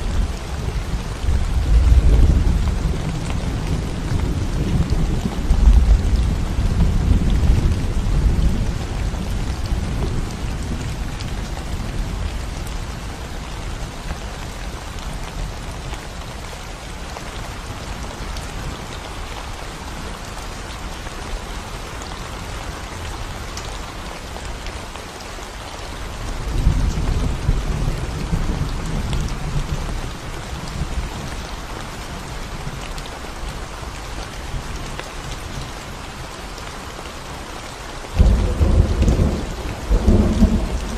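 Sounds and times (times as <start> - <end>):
rain falling on concrete road: 0.0 - 40.9
low thunder rumbles: 0.1 - 13.1, 38.2 - 40.9.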